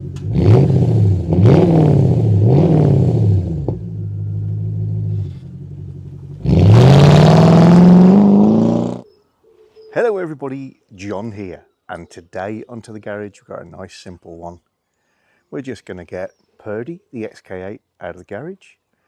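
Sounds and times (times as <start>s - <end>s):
car engine revving: 0.0s - 9.0s.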